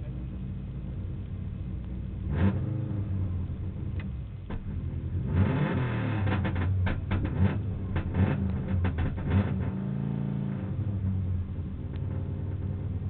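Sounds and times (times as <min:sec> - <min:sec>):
rally car engine revving: 0:00.0 - 0:13.0
exhaust cracks and pops: 0:03.3 - 0:05.0, 0:05.7 - 0:09.8, 0:10.9 - 0:13.0.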